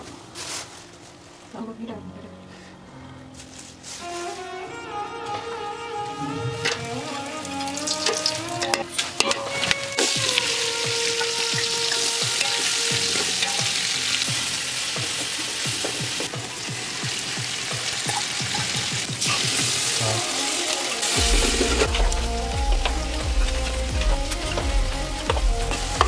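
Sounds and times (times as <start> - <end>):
ladle stirring in metal pot: 6.6 - 20.0
onions sizzling in hot oil: 6.7 - 26.0.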